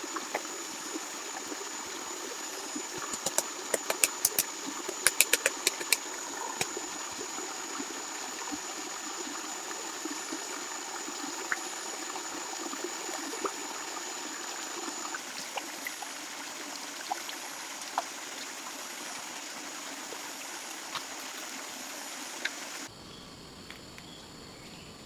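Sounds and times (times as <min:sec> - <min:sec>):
small stream trickling: 0:00.0 - 0:22.9
faint clicks: 0:03.0 - 0:06.0.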